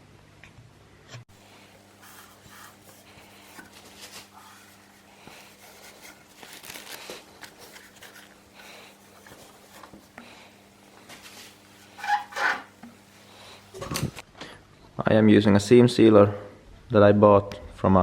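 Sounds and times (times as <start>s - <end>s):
low electrical hum: 0.0s - 18.0s
rubbing and scraping on metal: 1.4s - 10.2s, 11.0s - 12.8s.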